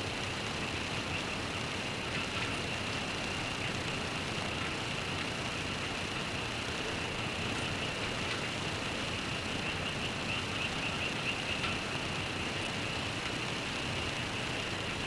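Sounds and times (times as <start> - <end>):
rain: 0.0 - 15.0
frogs chorus: 9.6 - 11.6.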